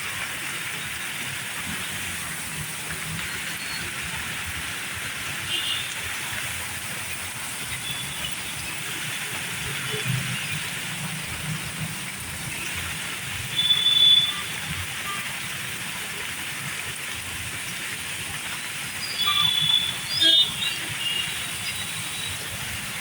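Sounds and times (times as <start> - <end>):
heavy rain hissing: 0.0 - 23.0.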